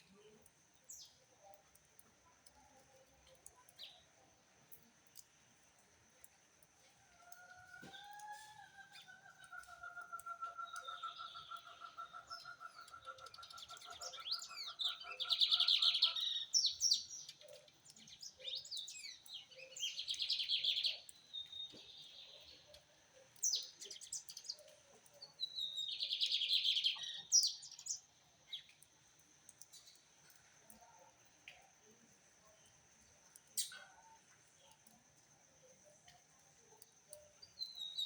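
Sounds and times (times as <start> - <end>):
bird chirps: 8.9 - 22.8, 23.4 - 28.8, 36.8 - 38.0.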